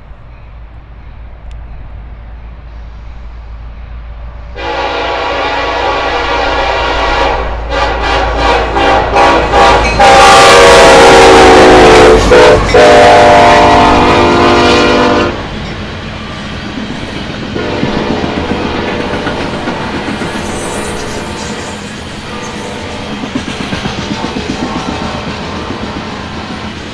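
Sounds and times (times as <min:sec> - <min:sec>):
freight train rumbling by: 0:00.0 - 0:26.9
locomotive horn: 0:04.6 - 0:15.5, 0:17.6 - 0:19.2.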